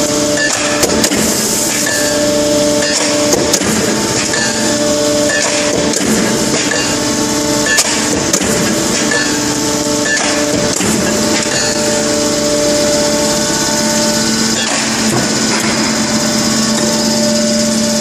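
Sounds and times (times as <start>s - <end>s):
machine humming: 0.0s - 18.0s
sharp clanks of tooling: 0.4s - 12.0s, 14.5s - 16.0s.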